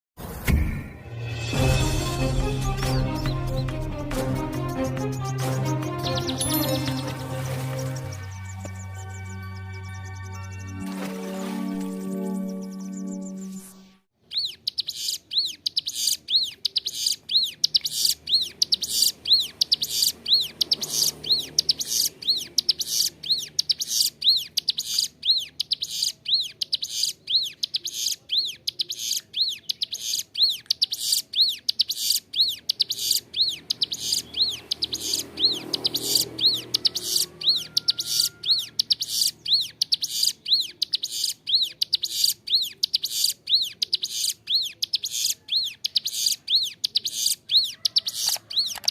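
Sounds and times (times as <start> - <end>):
prinia singing high chirps: 4.6 - 48.9.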